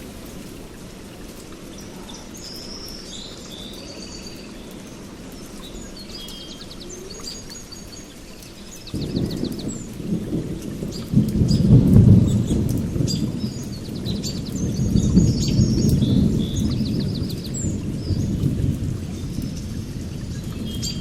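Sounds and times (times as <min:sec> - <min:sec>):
songbirds chirping and trilling: 0:00.4 - 0:21.0
thunder rumble: 0:08.7 - 0:21.0.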